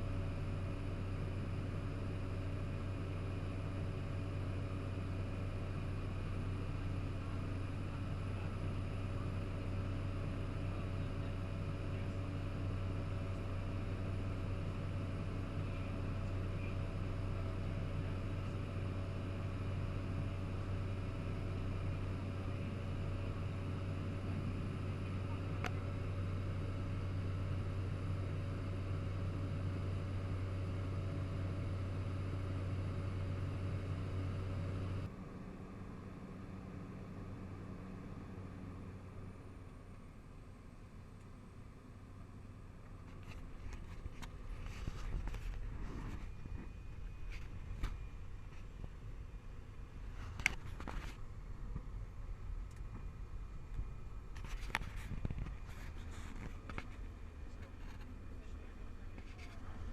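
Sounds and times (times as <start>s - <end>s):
turboprop engine droning: 0.0s - 59.9s.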